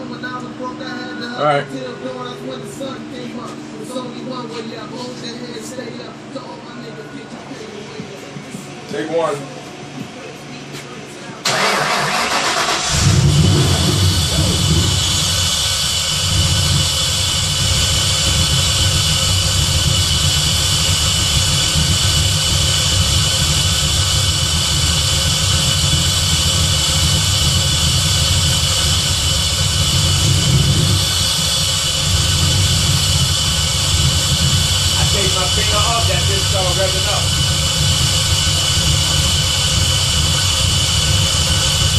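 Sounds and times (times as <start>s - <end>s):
high-pitched supercharger whine: 0.0s - 8.0s, 11.4s - 41.9s
car engine idling: 11.4s - 41.9s.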